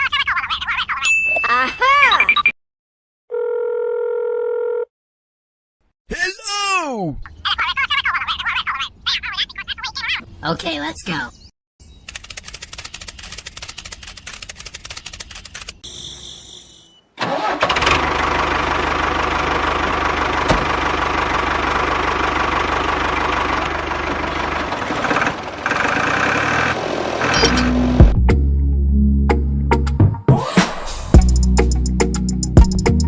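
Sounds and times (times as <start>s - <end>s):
rapid even ticking: 12.1s - 15.8s.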